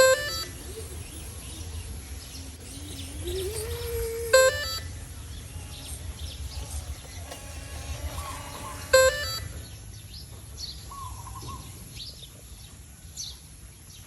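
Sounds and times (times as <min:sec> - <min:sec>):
electronic beep rising in pitch: 0:00.0 - 0:01.4, 0:03.2 - 0:05.0, 0:08.9 - 0:09.6
birds warbling and chirping: 0:00.0 - 0:12.6.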